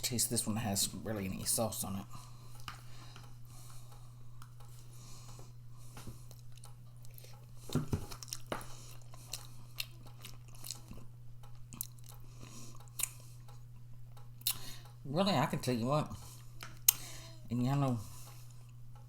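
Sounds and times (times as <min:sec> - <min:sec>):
steady low hum: 0:00.0 - 0:19.0
person chewing food: 0:02.3 - 0:15.0.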